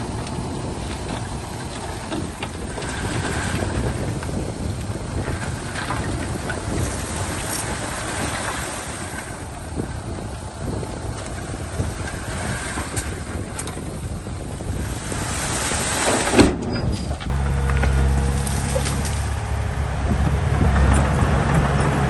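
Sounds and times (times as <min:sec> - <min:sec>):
diesel machinery rumbling: 0:00.0 - 0:22.0
loud clunk: 0:16.0 - 0:19.4.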